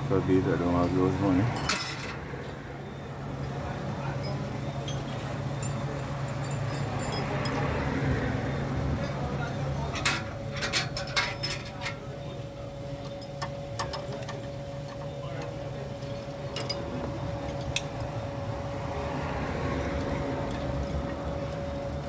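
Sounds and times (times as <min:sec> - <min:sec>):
metal tools clinking: 0:01.6 - 0:02.2, 0:04.2 - 0:07.8, 0:09.4 - 0:12.1, 0:13.1 - 0:18.2, 0:20.0 - 0:22.0.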